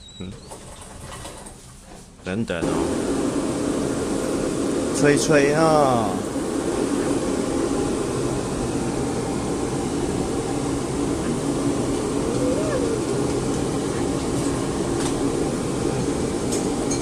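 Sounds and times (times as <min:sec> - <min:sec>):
hair dryer blowing: 0:02.6 - 0:16.2.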